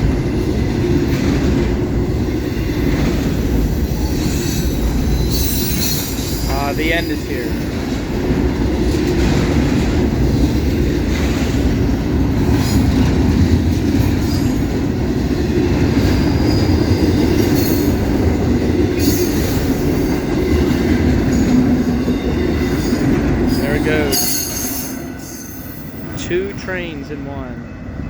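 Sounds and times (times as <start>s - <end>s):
train wheels rumbling on rail: 0.0s - 28.0s
high wheel squeals: 3.9s - 7.4s.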